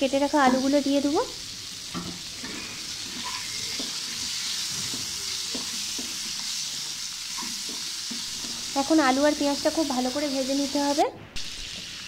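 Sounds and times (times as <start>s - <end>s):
potatoes sizzling in oil: 0.0s - 12.0s
spatula scraping and tapping pan: 1.9s - 9.0s.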